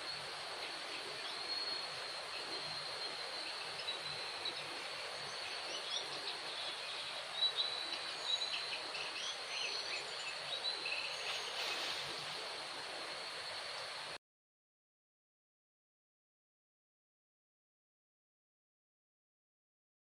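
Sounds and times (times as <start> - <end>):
insects buzzing: 0.0 - 14.2.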